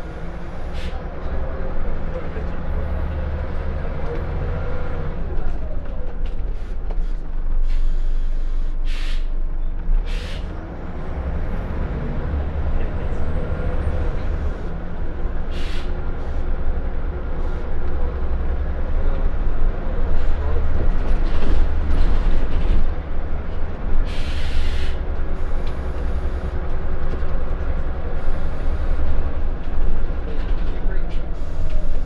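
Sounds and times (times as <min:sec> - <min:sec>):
bus diesel engine running: 0:00.0 - 0:32.0
air brake hisses: 0:07.6 - 0:09.4, 0:10.1 - 0:10.5, 0:15.5 - 0:16.0, 0:24.1 - 0:26.5.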